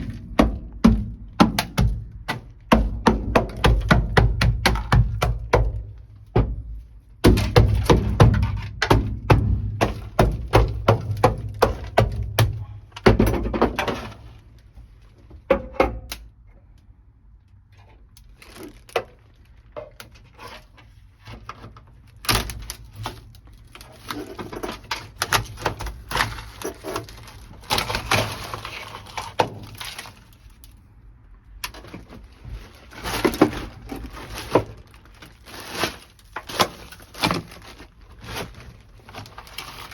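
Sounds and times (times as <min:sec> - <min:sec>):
frozen mat cracking: 0:25.0 - 0:30.8, 0:31.8 - 0:39.9
scraping: 0:31.6 - 0:39.9.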